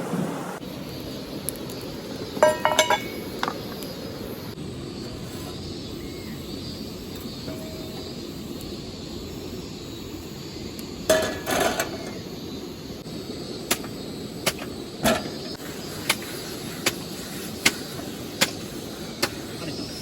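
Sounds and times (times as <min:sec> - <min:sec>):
background hiss: 0:00.0 - 0:20.0.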